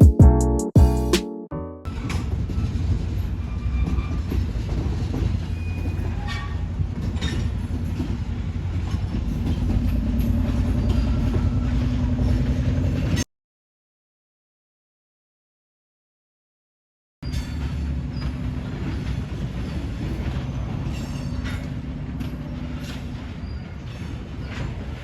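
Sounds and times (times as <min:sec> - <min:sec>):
train rumble: 0:01.9 - 0:13.2, 0:17.3 - 0:25.0
wheels clicking over rail joints: 0:01.9 - 0:13.2, 0:17.2 - 0:25.0.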